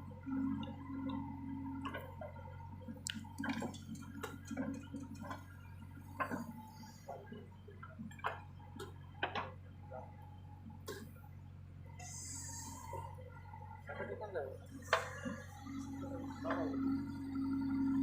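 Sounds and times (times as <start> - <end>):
steady low hum: 0.0 - 18.0
clicks and light knocks: 7.8 - 9.6.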